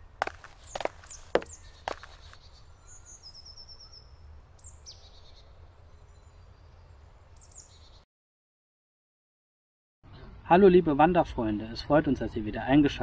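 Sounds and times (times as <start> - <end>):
forest birds calling: 0.0 - 8.0
bird trill: 0.6 - 8.0.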